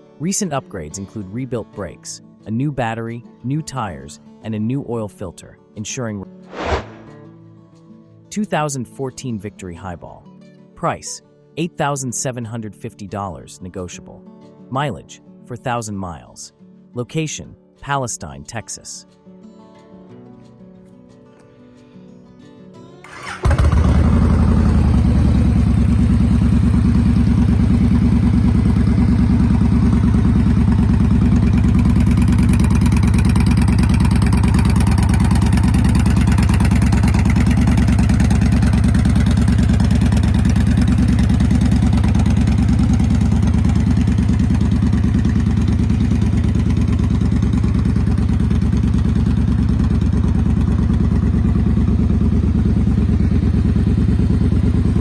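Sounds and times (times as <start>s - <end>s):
motorcycle engine idling: 23.1s - 55.0s.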